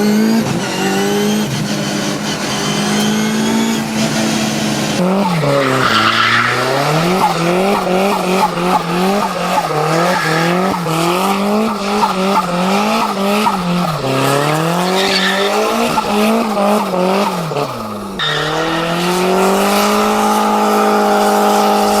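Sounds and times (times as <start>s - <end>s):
car engine revving: 0.0s - 22.0s
tyres skidding: 0.0s - 22.0s
tyre squeal: 5.0s - 16.7s, 18.2s - 20.6s.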